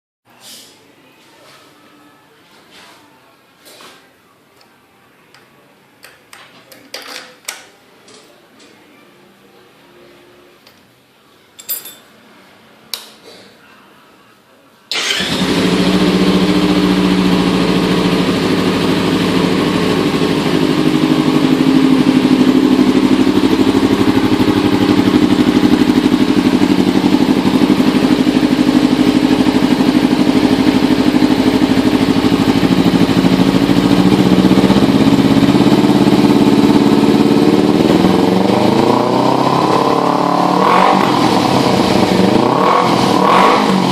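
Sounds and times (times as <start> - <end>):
motorcycle engine starting and idling: 14.9 - 43.9.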